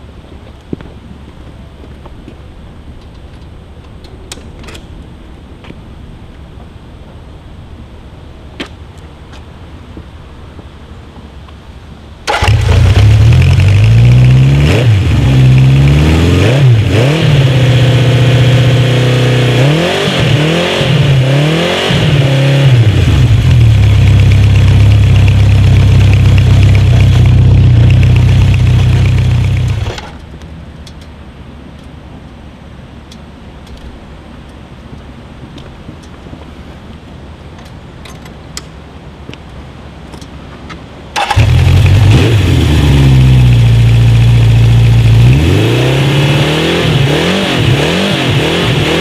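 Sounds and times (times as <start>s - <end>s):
motorcycle engine starting and revving: 12.2s - 30.4s, 41.1s - 49.0s.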